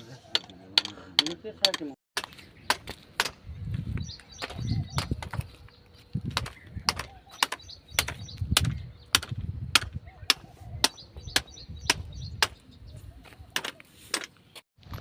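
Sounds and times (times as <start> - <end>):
hammer striking rock: 6.3 - 12.6.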